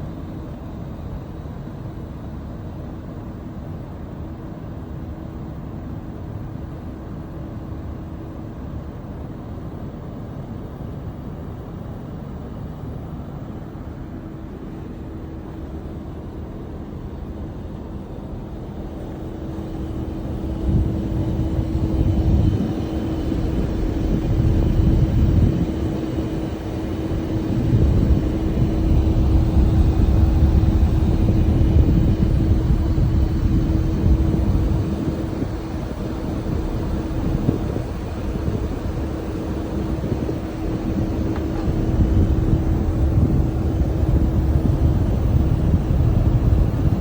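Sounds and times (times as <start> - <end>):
heat pump humming: 0.0 - 47.0
low surging rumble: 19.6 - 47.0.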